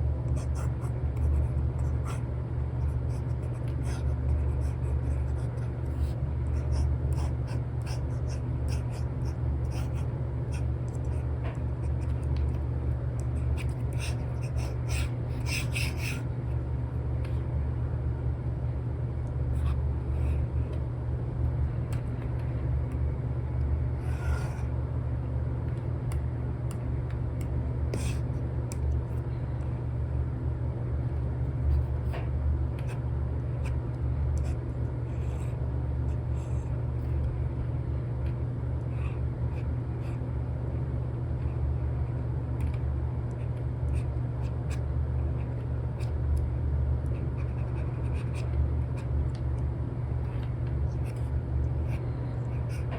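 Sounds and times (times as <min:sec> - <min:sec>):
steady low rumble: 0:00.0 - 0:52.9
stylus scratching and tapping screen: 0:02.8 - 0:16.3, 0:27.4 - 0:29.0, 0:47.0 - 0:49.1.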